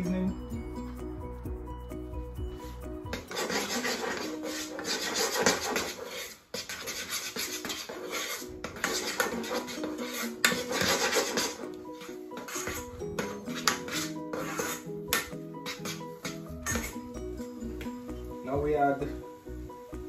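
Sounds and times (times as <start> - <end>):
utensil scraping thick cornmeal: 3.1 - 17.0.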